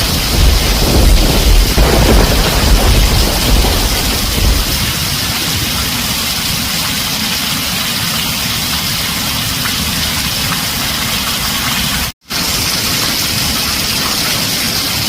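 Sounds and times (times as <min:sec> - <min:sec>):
heavy rain on a tin roof: 0:00.0 - 0:15.0.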